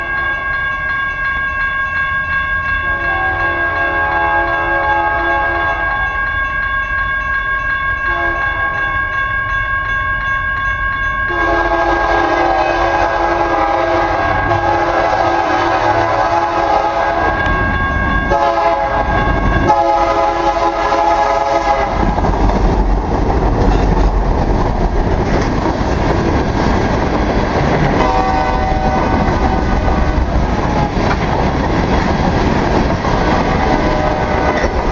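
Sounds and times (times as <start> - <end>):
locomotive air horn blasts: 2.8 - 6.1, 8.1 - 8.8, 11.3 - 17.5, 18.3 - 22.0, 27.9 - 30.3, 33.8 - 34.8
train rumbling past: 11.3 - 34.9.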